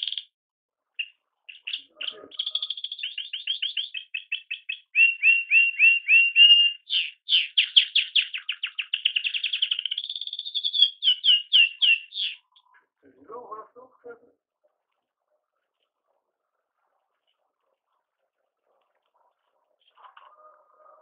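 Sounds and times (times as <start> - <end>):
canary singing: 0.0 - 0.3, 1.0 - 12.9.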